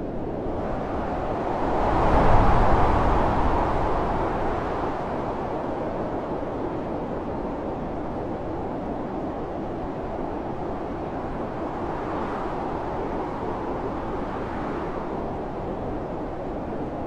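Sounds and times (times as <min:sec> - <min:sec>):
blizzard wind blowing: 0:00.0 - 0:17.0.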